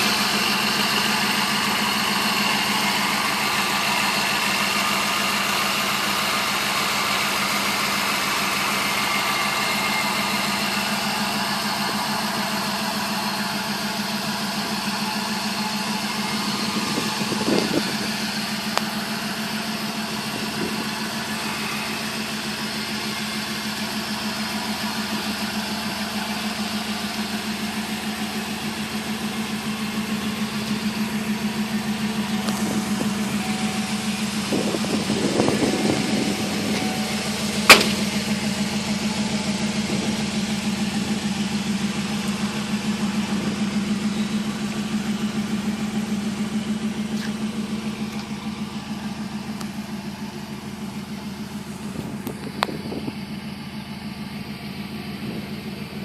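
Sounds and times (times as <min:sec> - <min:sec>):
engine idling: 0:00.0 - 0:56.0
short knock: 0:37.7 - 0:38.0.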